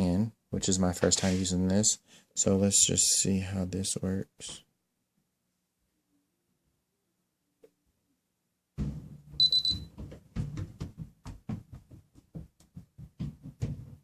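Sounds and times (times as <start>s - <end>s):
knocks from handling objects: 8.8s - 14.0s
high electronic beep: 9.4s - 9.9s.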